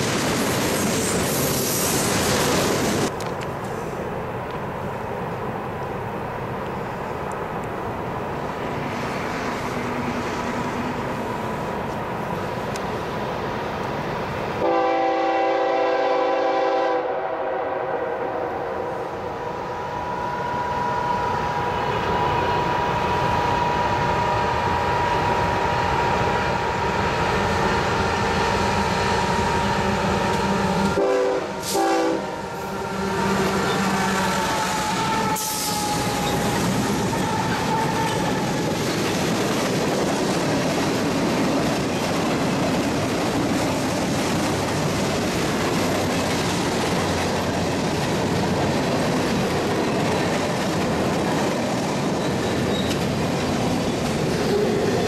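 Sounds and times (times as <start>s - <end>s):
train rumble: 0.0s - 55.0s
locomotive horn blasts: 14.6s - 19.0s, 30.8s - 36.4s
wheels clacking over rail joints: 33.3s - 55.0s.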